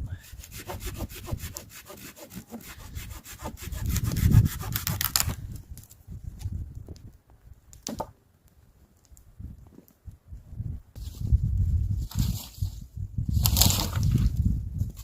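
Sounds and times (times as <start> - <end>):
hand saw cutting wood: 0.2 - 5.4.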